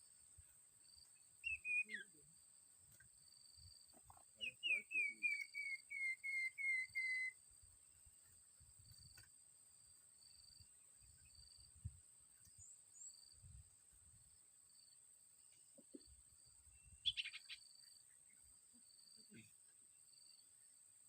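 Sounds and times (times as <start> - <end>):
faint high chirp: 1.1 - 2.2, 4.4 - 7.4, 15.8 - 18.4
songbird whistled notes: 1.4 - 2.2, 4.4 - 7.4, 16.8 - 17.6.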